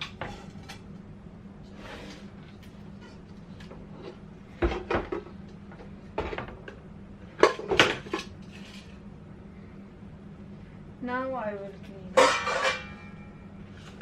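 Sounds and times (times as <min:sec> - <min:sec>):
cooking pots clanking: 0:12.1 - 0:13.2.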